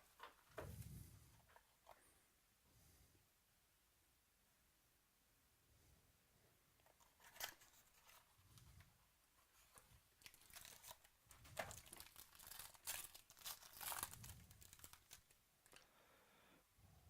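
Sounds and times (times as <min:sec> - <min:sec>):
cards rustling: 0:06.8 - 0:15.8
wrapper tearing and crinkling: 0:10.1 - 0:15.8.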